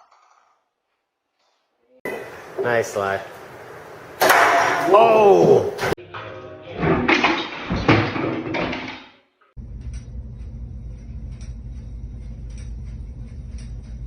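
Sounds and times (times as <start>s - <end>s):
ceiling fan humming: 2.1s - 6.0s, 9.6s - 14.0s.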